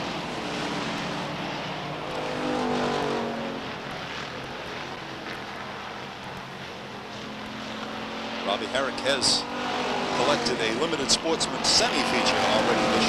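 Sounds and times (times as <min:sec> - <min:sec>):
stock car engines racing: 0:00.0 - 0:04.4, 0:07.1 - 0:13.0.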